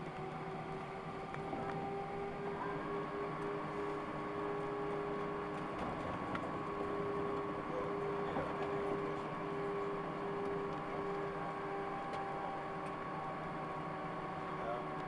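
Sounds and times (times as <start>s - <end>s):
aircraft engines idling: 0.0s - 15.0s.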